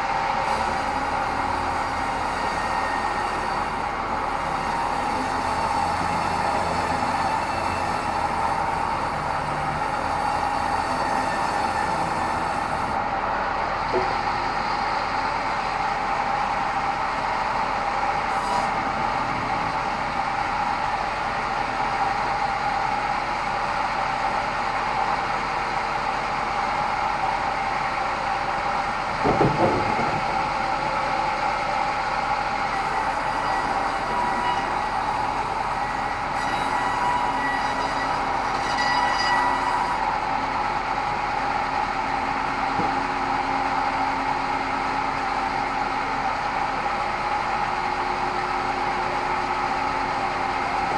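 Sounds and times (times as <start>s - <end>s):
band saw running with whine: 0.0s - 13.1s, 30.4s - 50.9s.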